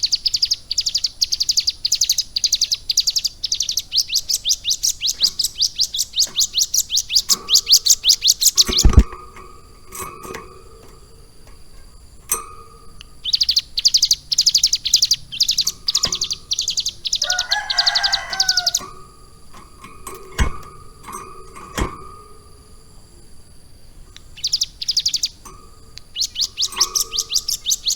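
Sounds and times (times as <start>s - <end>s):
bird singing fast trills: 0.0s - 23.4s, 24.1s - 27.9s
sharp clicks: 4.8s - 17.2s, 24.1s - 27.9s.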